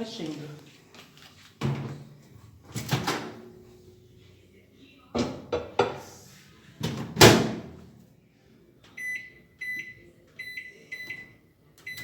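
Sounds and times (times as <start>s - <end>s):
microwave oven beeping: 9.0s - 12.0s.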